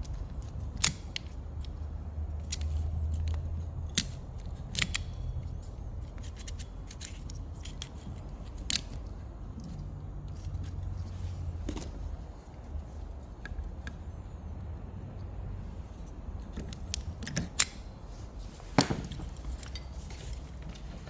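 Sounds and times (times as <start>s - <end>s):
small tools clicking and tapping: 0.0s - 11.1s.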